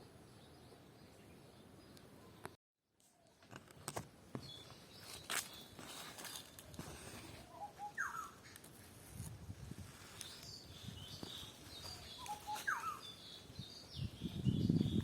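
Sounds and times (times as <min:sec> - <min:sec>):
soft footsteps on ground: 0:03.3 - 0:13.2
birds chirping: 0:04.4 - 0:08.9, 0:10.2 - 0:15.0.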